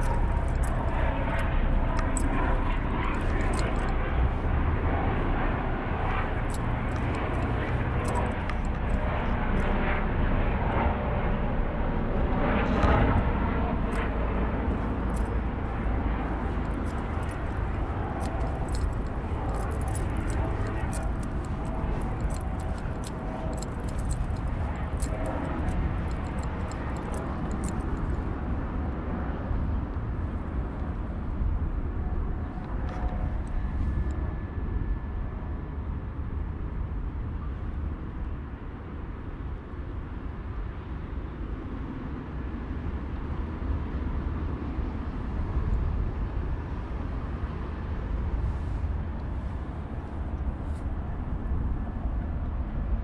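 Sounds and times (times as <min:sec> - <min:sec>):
low outdoor rumble: 0:00.0 - 0:38.5.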